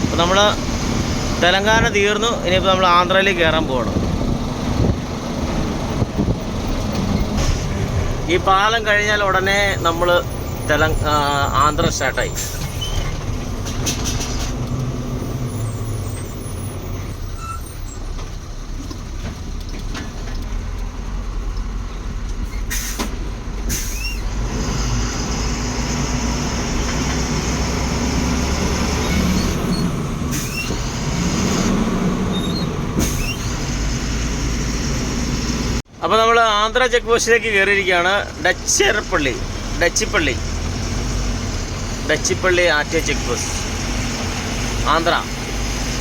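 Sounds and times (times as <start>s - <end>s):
lorry engine running: 0.0s - 36.0s.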